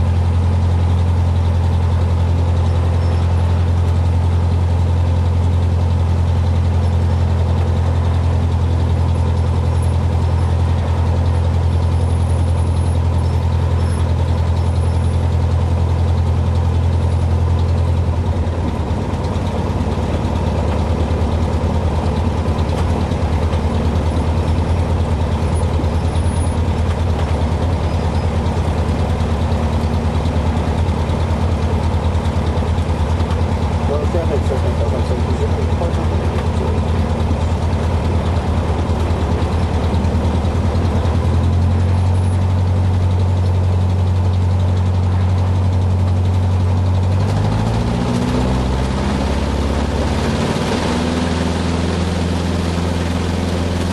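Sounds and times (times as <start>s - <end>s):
airplane engine and propeller drone: 0.0s - 53.9s.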